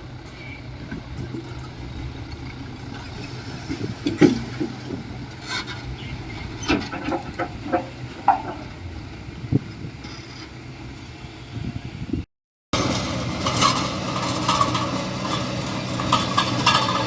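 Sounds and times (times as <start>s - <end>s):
heavy machinery rumbling: 0.0s - 12.2s, 12.8s - 17.0s
metallic clanks and knocks: 0.2s - 8.8s, 12.8s - 17.0s.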